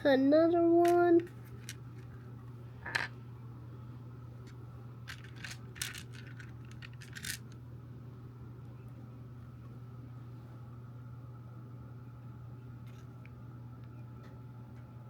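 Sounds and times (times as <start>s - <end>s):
plastic bricks clicking: 5.1s - 7.5s.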